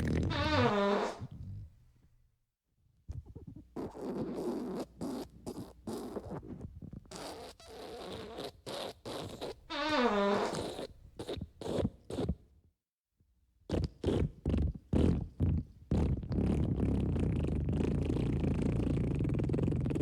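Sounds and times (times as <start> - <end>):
fart sound effects: 0.0 - 1.6, 9.1 - 10.8
long squeaky fart: 0.0 - 1.7, 3.8 - 12.4, 13.7 - 20.0.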